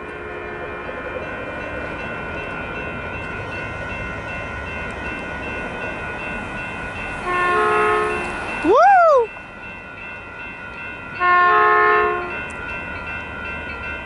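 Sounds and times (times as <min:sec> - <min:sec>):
crossing bells ringing: 0:00.0 - 0:14.0
train rumble: 0:00.0 - 0:14.0
train horn: 0:07.2 - 0:08.4, 0:11.2 - 0:12.4.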